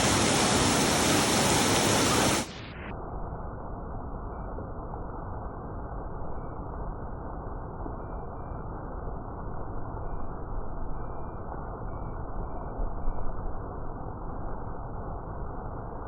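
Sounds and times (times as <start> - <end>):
steady rainfall: 0.0 - 2.8.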